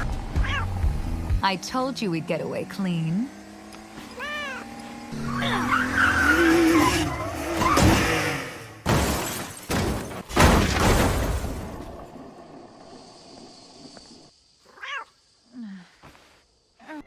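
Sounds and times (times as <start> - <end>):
engine revving: 0.0 - 8.8
tyres screeching: 3.7 - 8.4
vehicle crashes: 6.5 - 12.1.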